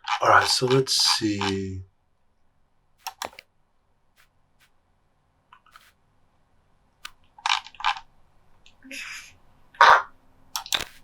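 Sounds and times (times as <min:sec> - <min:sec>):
sharp clicks: 0:03.0 - 0:03.5, 0:10.5 - 0:11.0.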